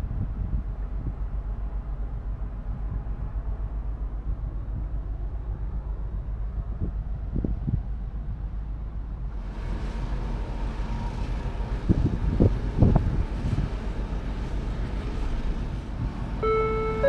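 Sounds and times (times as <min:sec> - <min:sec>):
wind noise: 0:00.0 - 0:01.5, 0:06.6 - 0:08.6, 0:11.3 - 0:16.3
ship engine low rumble: 0:00.0 - 0:17.0
onboard chime melody: 0:16.4 - 0:17.0
ship announcement: 0:16.4 - 0:17.0.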